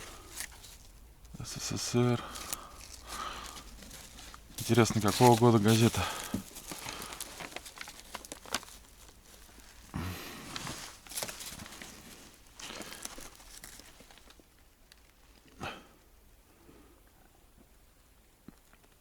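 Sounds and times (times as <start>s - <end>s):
newspaper rustling: 0.0s - 14.5s.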